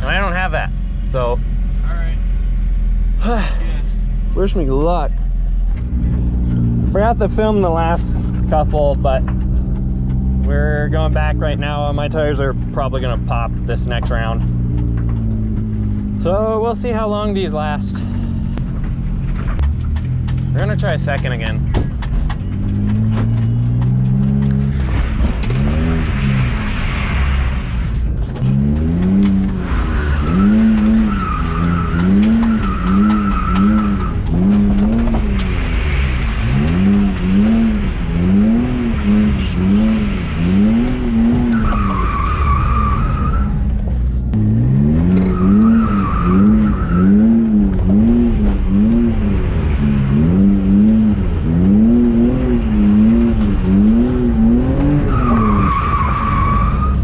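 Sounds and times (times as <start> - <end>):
car engine revving: 0.0 - 57.0
tyres squealing: 29.1 - 43.7, 45.1 - 48.4, 53.0 - 57.0.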